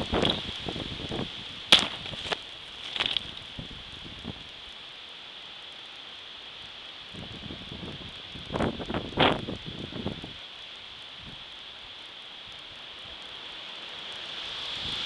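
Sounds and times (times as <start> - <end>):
wind gusting through trees: 0.0 - 15.0
sharp cracks: 1.7 - 3.5.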